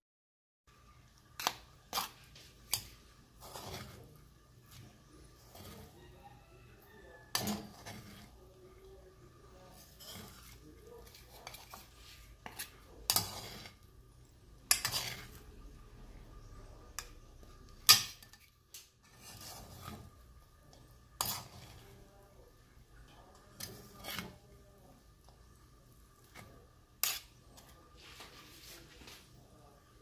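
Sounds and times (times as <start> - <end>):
metal spatula scraping wok: 1.4 - 8.6, 9.6 - 13.9, 14.6 - 15.6, 16.4 - 22.2, 23.2 - 24.6, 26.1 - 29.1.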